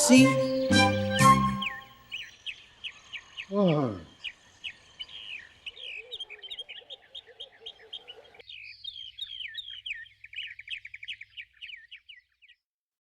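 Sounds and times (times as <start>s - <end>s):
lower warbling bird call: 0.0s - 12.2s
small birds chirping: 0.0s - 12.7s.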